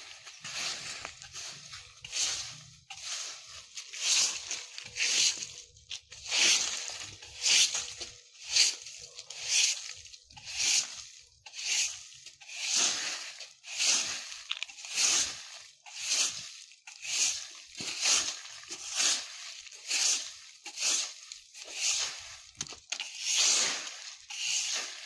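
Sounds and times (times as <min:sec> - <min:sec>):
broom sweeping dry leaves: 0:00.0 - 0:25.0.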